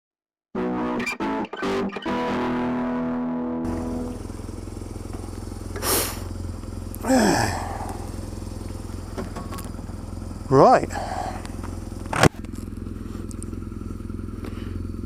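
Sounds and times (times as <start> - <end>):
music sting: 0.6 - 4.4
motorcycle engine idling: 3.6 - 15.0
short hiss: 5.7 - 6.3.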